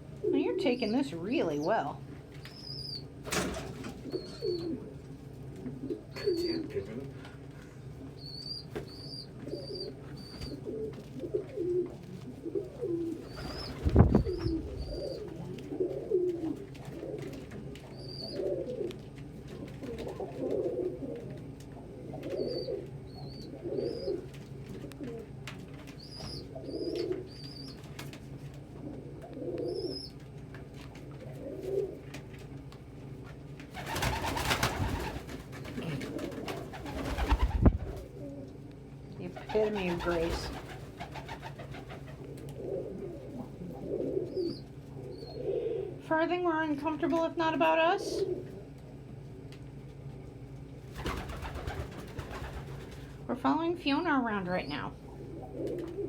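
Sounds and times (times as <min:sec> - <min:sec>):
pigeons cooing: 0:02.5 - 0:28.0, 0:28.6 - 0:30.4, 0:31.0 - 0:32.2, 0:33.7 - 0:38.7, 0:39.3 - 0:46.0, 0:48.0 - 0:48.8, 0:50.9 - 0:53.2, 0:54.6 - 0:56.0.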